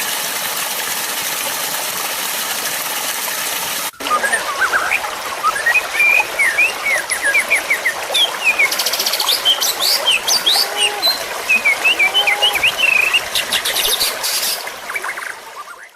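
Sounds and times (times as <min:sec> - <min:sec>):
songbirds chirping and whistling: 0:04.0 - 0:15.9.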